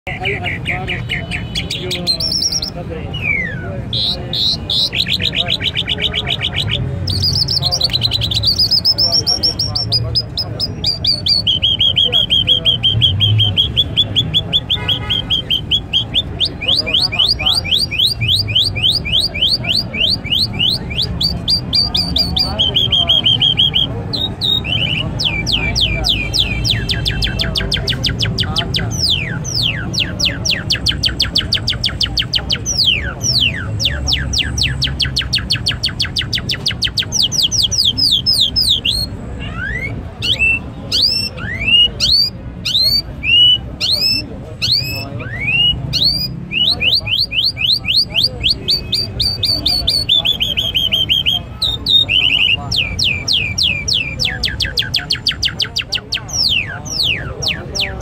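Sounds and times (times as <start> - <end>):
high bird trill: 0.1 - 58.0
small birds chirping: 0.1 - 58.0.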